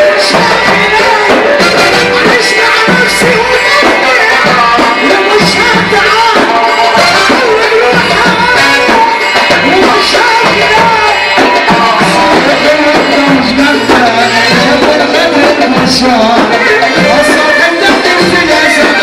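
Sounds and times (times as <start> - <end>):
hand-drum beat: 0.0 - 19.0
wavering melody line: 0.0 - 19.0.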